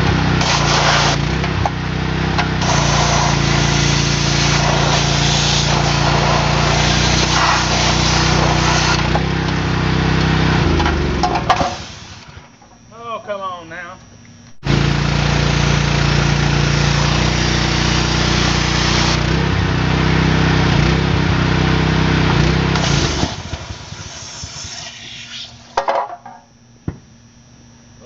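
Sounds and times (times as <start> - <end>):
hissing water spray: 0.0 - 1.4, 2.4 - 10.6, 11.4 - 12.4, 14.7 - 19.4, 22.4 - 25.8
pressure washer engine: 0.0 - 12.6, 14.6 - 25.8.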